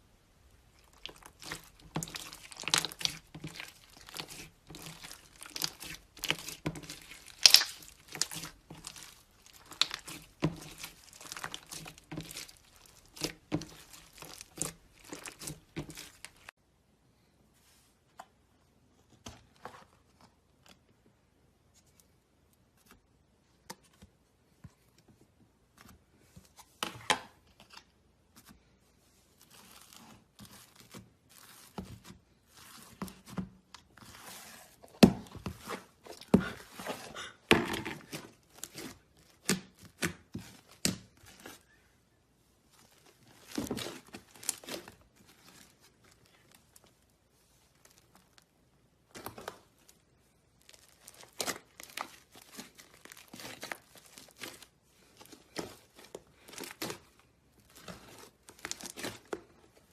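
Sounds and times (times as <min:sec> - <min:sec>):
slime squished and stretched: 0:00.4 - 0:16.5, 0:29.4 - 0:41.8, 0:42.7 - 0:59.9.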